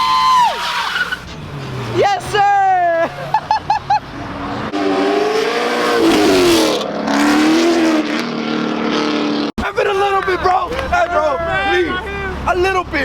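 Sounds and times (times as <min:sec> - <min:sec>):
car engine revving: 0:03.9 - 0:10.2.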